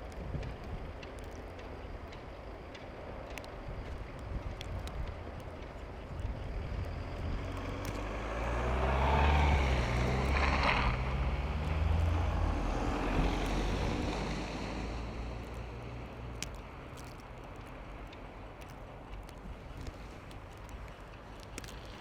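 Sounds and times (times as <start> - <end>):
vehicle engine passing by: 7.2 - 16.4.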